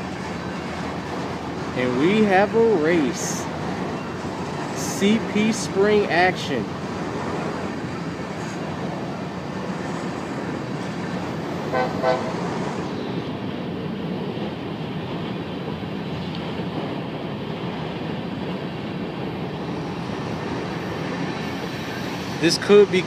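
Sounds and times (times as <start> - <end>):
train wheels rumbling on rail: 0.0 - 23.0
locomotive horn toots: 11.7 - 12.5.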